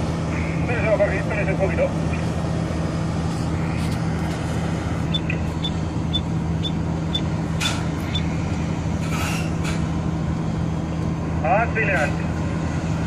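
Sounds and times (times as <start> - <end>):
truck diesel engine idling: 0.0 - 9.0.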